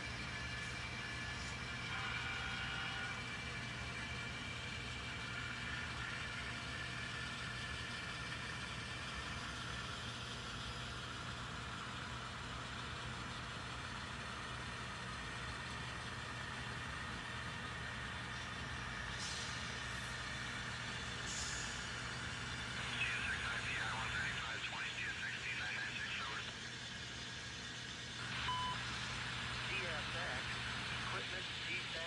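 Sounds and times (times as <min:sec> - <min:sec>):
model locomotive humming: 0:00.0 - 0:24.8.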